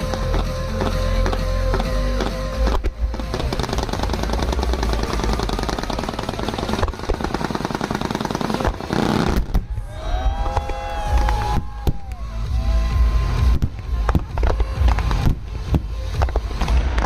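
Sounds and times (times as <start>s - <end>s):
fireworks crackling: 0.0s - 17.0s
sharp bangs: 0.0s - 17.0s.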